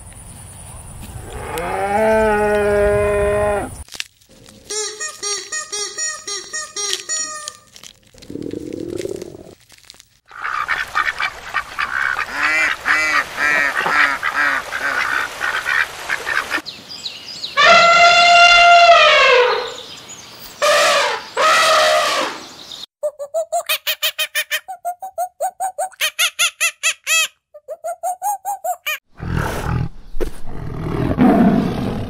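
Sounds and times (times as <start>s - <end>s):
animal honking calls: 17.6s - 19.8s.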